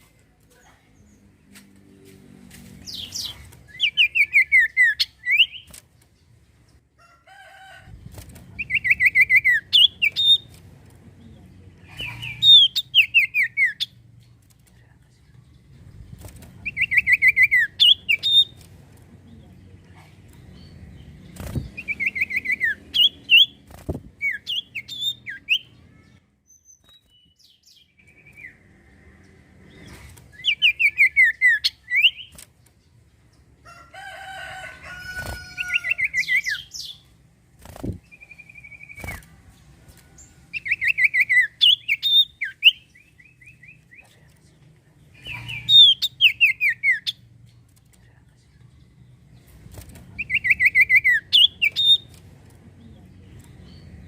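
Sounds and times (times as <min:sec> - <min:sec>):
bird chirping and whistling: 0:02.9 - 0:05.7, 0:21.8 - 0:23.6, 0:24.2 - 0:25.7, 0:30.4 - 0:32.3, 0:40.6 - 0:43.3, 0:45.5 - 0:47.2, 0:50.2 - 0:52.0.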